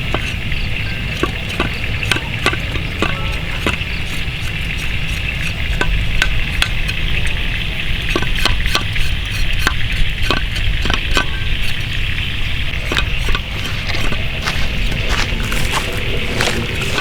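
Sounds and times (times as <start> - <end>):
utensil tapping against a pan: 0.0 - 7.3, 8.0 - 12.0.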